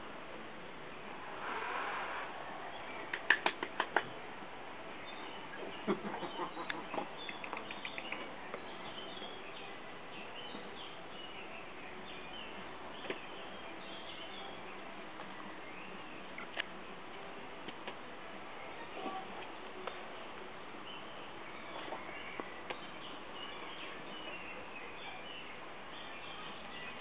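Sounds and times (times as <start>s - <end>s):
small birds chirping: 0.9s - 16.8s, 18.5s - 27.0s
sharp clicks: 6.7s - 8.3s.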